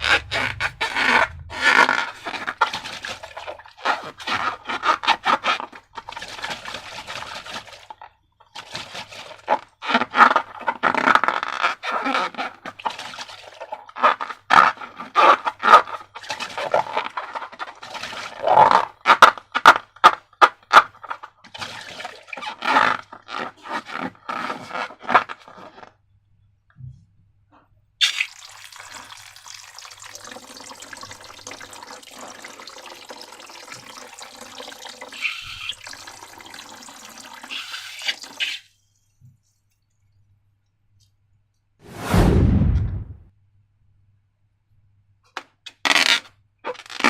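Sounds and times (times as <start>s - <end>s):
slime squelching by hand: 0.0s - 19.9s
liquid pouring: 1.5s - 9.8s, 28.0s - 38.9s.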